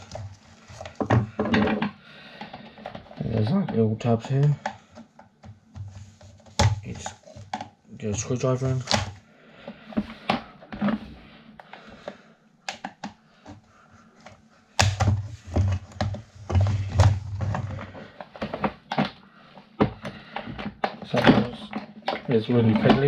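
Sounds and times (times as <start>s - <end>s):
plastic clicks and taps: 11.6s - 13.6s.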